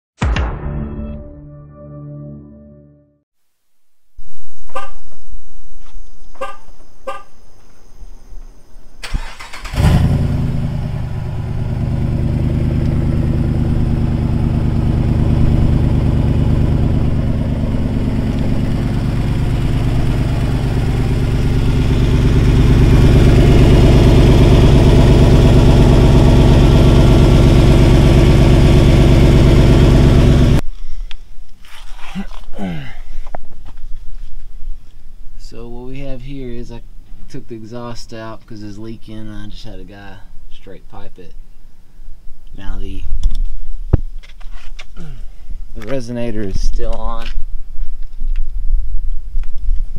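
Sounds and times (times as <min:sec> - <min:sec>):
engine starting and idling: 0:09.0 - 0:11.1.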